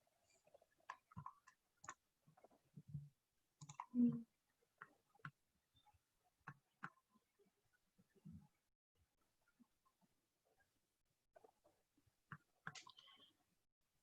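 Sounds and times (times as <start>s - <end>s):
mouse and keyboard clicks: 3.6s - 3.9s, 12.3s - 13.3s.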